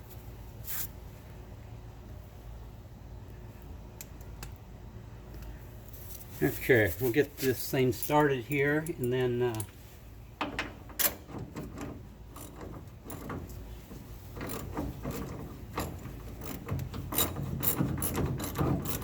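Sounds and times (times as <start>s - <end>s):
metal clicks and scraping: 10.4s - 19.0s.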